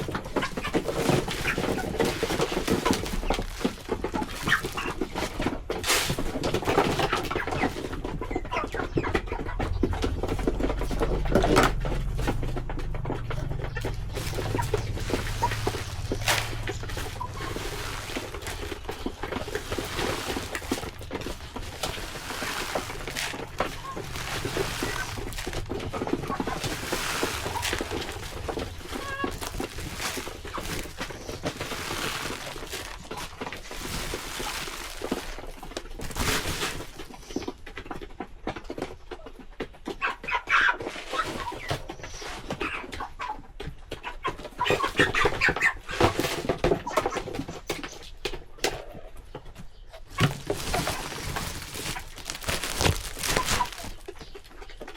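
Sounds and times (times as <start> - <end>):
chickens clucking: 0.0 - 54.9
small clicks and rustles: 10.0 - 39.4.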